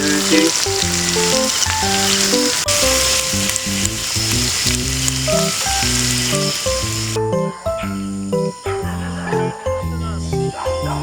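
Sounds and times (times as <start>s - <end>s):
meat sizzling: 0.0s - 7.2s.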